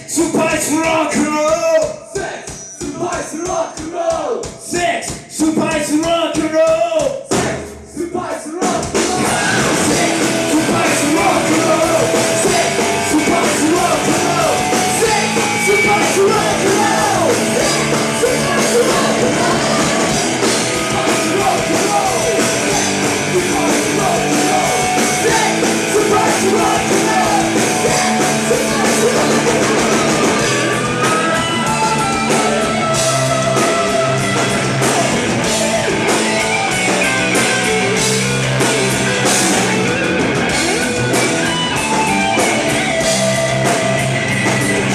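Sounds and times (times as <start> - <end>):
rock band playing live: 0.0 - 3.8, 4.4 - 44.9
electric guitar lines: 9.3 - 44.9.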